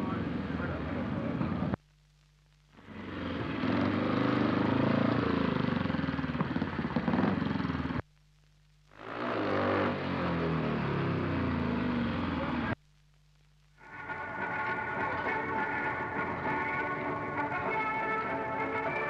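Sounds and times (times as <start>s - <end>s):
motorcycle engines running: 2.9s - 8.0s, 9.0s - 12.8s.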